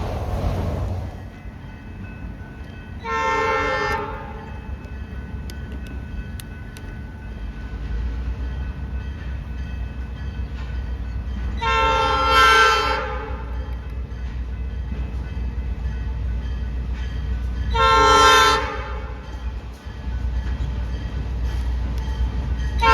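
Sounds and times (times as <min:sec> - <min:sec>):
low train rumble: 0:00.0 - 0:22.9
locomotive horn blasts: 0:03.0 - 0:04.5, 0:11.6 - 0:13.6, 0:17.7 - 0:19.2.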